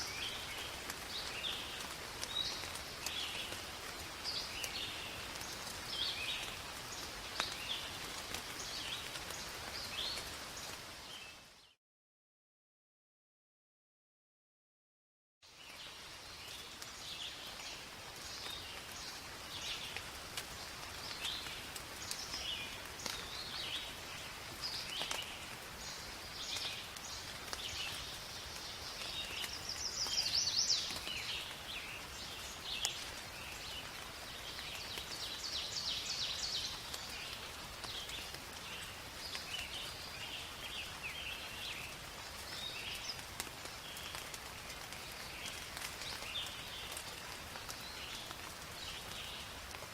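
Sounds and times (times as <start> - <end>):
rain falling in forest: 0.0 - 11.8, 15.4 - 49.9.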